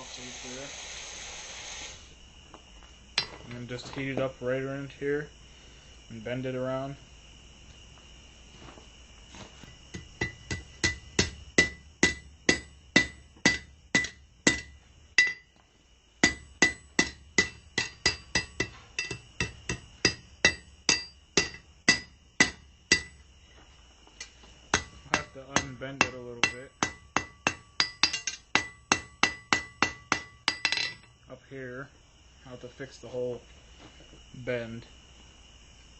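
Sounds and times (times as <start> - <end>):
hammer striking steel on anvil: 9.9 - 15.5, 16.2 - 23.2, 24.7 - 31.1.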